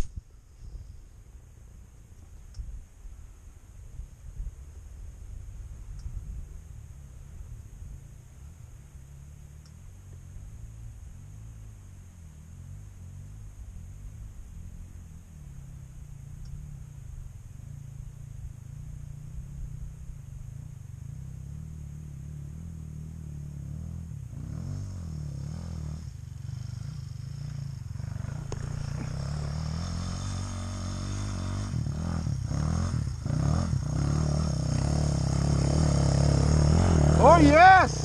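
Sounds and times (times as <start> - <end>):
dirt bike engine revving: 21.2 - 38.0.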